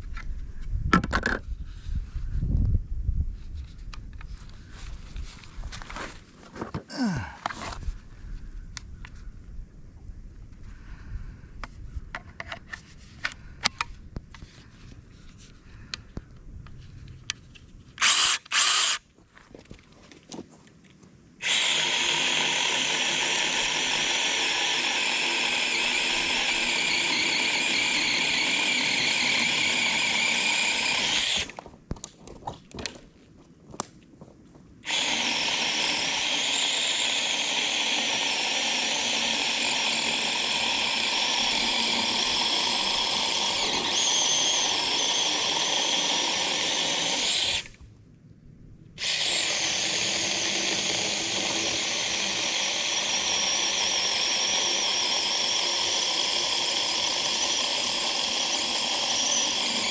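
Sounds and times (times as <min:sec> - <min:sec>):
electric chainsaw whining: 0:18.0 - 0:19.0, 0:21.4 - 0:31.6, 0:34.8 - 0:47.8, 0:49.0 - 0:59.9.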